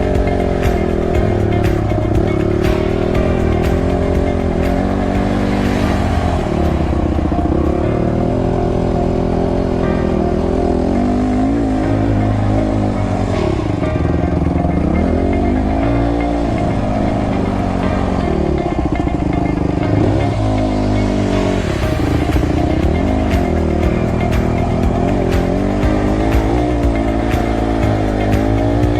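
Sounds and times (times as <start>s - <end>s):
motocross bike engine revving: 0.0s - 17.6s.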